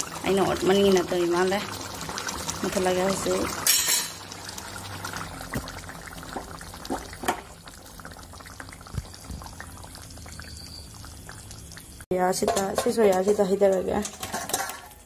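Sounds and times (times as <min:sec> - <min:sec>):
thick gravy simmering: 0:00.0 - 0:12.1
bubbles bursting: 0:04.4 - 0:12.0.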